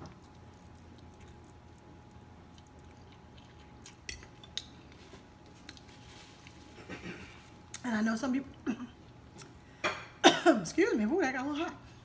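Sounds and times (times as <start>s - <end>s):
quiet chewing: 0.0s - 7.8s.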